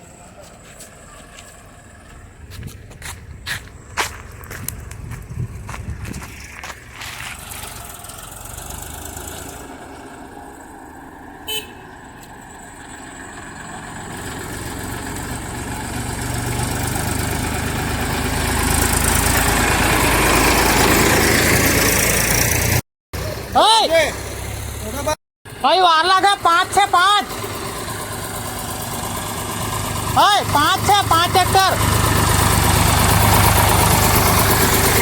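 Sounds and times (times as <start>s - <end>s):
tractor engine rumble: 0.0s - 35.0s
horn toot: 11.4s - 12.0s.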